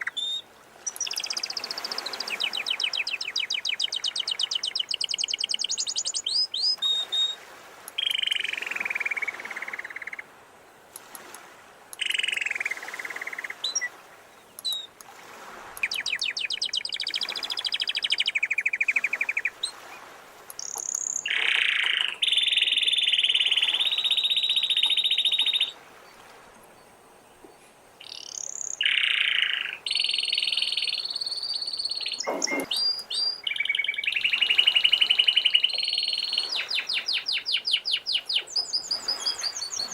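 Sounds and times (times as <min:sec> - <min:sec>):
canary singing trills: 0:28.0 - 0:39.9.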